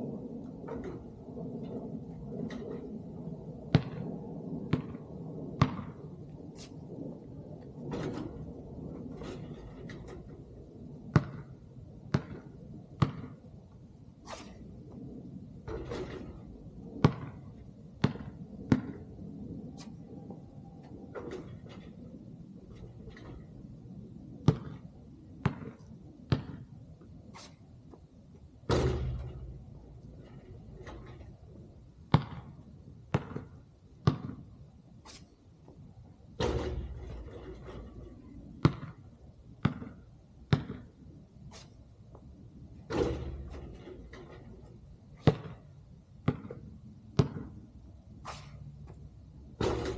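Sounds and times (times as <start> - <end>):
low background noise: 0.0 - 49.9
basketball bouncing on hard ground: 3.6 - 6.7, 7.8 - 14.6, 15.6 - 19.2, 21.1 - 23.7, 24.3 - 31.4, 32.0 - 35.8, 36.4 - 49.9
basketball bouncing on court: 3.7 - 4.1, 4.7 - 5.0, 5.6 - 6.0, 11.1 - 13.4, 17.0 - 17.4, 18.0 - 19.1, 24.4 - 26.7, 28.7 - 29.5, 30.2 - 31.2, 32.1 - 34.5, 36.4 - 38.0, 38.6 - 39.0, 39.6 - 41.0, 45.2 - 47.6, 49.6 - 49.9
short hissing swishes: 14.2 - 14.7, 27.3 - 27.6, 35.0 - 35.3, 48.2 - 48.7.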